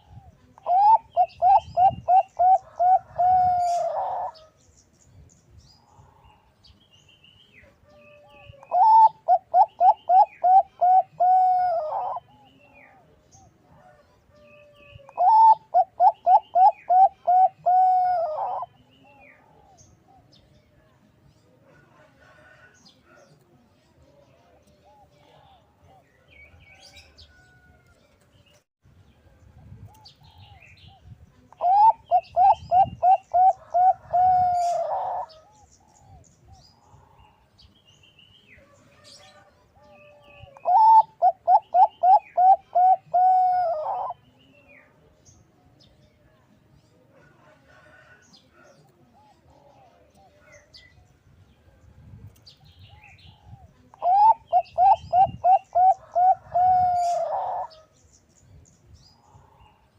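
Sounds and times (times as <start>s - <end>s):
dove cooing: 0.0s - 4.5s, 7.9s - 13.0s, 13.9s - 18.8s, 31.6s - 36.2s, 39.3s - 44.2s, 52.9s - 57.8s.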